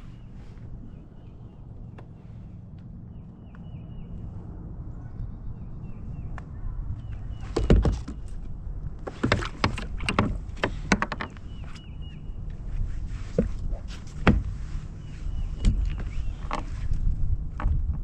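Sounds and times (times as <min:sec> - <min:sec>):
wind buffeting microphone: 0:00.0 - 0:18.0
knocks and clatter on plastic kayak: 0:07.3 - 0:11.9, 0:13.3 - 0:14.6, 0:15.5 - 0:18.0.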